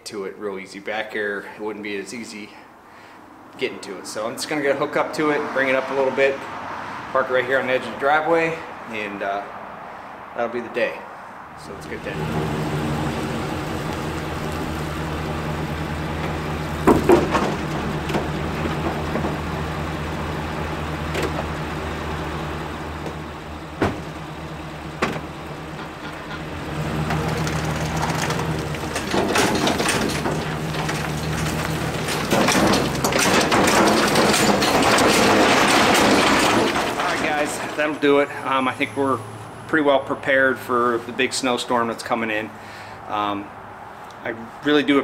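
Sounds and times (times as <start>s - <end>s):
vehicle engine idling: 11.2s - 41.3s
trailer hitch metal clanks: 11.6s - 38.6s.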